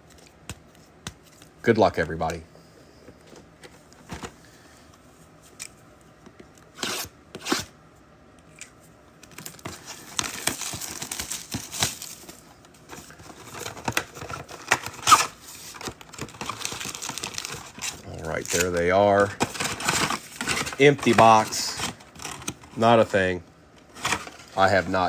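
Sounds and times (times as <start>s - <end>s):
plastic wrap tearing and crinkling: 9.4s - 12.2s, 13.4s - 22.6s.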